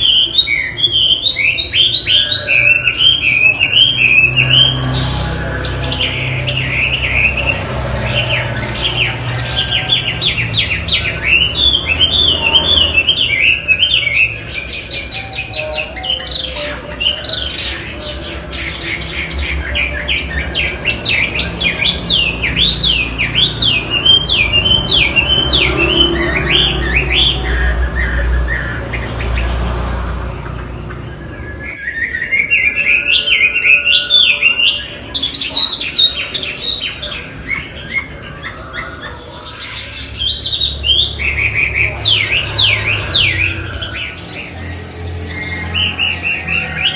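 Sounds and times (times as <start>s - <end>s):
bird singing whistled notes: 0.0s - 29.4s, 30.8s - 46.9s.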